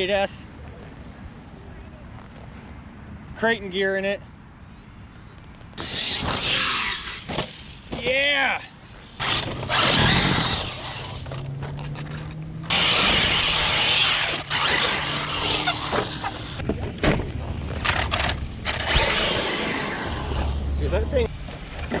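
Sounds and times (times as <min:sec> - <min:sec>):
rc truck tyres rushing on dirt: 0:08.7 - 0:16.7, 0:18.6 - 0:22.0.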